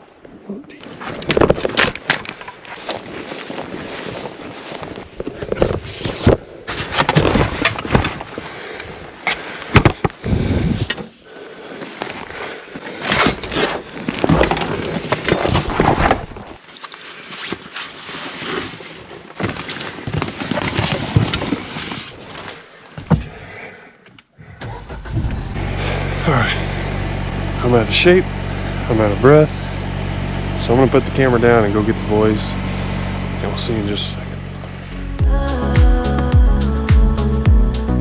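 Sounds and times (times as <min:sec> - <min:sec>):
crunching and rustling: 0:00.8 - 0:10.2, 0:11.8 - 0:22.8.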